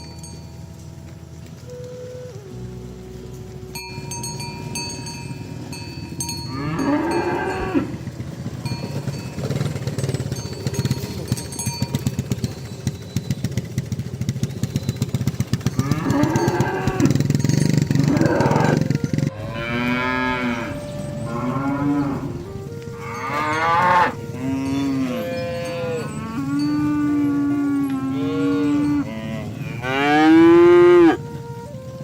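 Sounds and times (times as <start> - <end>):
rapid rattling noise: 0.0 - 23.4
cattle mooing: 3.6 - 8.6, 15.7 - 31.3.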